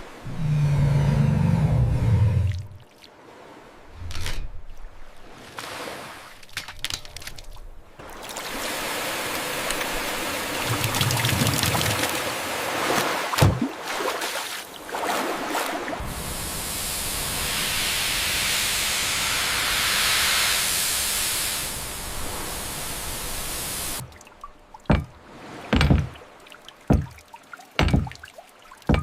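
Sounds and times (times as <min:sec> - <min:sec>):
water rushing hiss: 0:08.0 - 0:13.4, 0:14.7 - 0:24.1
dull thumps: 0:24.9 - 0:26.2, 0:26.9 - 0:27.2, 0:27.8 - 0:28.2.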